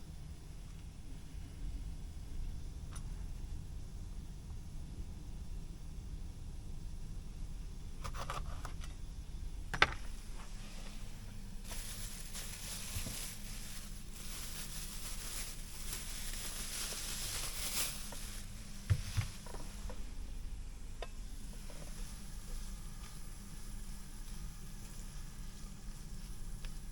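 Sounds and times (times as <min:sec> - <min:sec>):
low steady hum: 0:00.0 - 0:26.9
steady hiss: 0:10.0 - 0:26.9.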